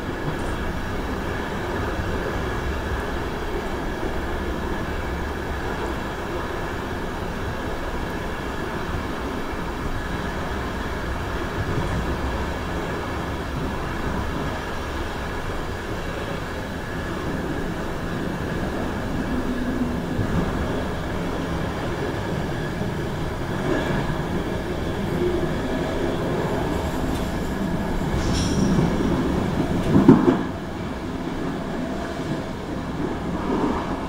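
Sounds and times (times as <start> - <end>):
train wheels rumbling in tunnel: 0.0 - 34.0.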